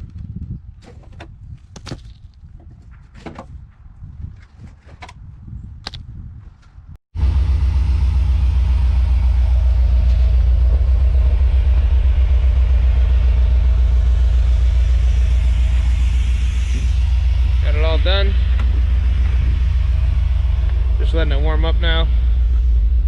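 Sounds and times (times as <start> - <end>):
truck engine idling: 7.2 - 23.0.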